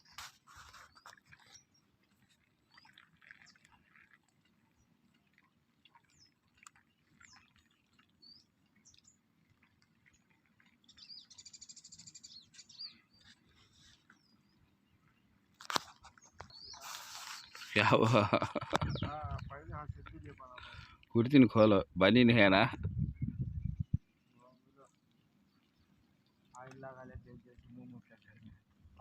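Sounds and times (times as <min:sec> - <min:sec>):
faint bird chirps: 0:10.9 - 0:15.1, 0:16.0 - 0:17.8.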